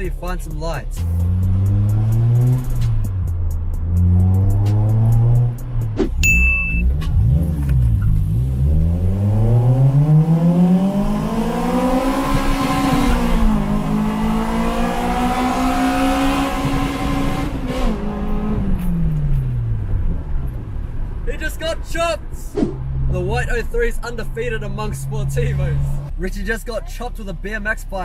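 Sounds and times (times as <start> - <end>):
car engine accelerating hard: 1.0 - 6.0, 6.8 - 20.9.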